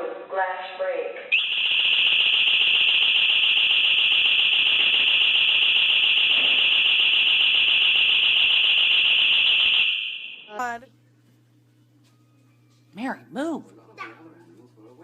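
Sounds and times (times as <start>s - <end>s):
alarm siren high-pitched tone: 1.4s - 10.8s.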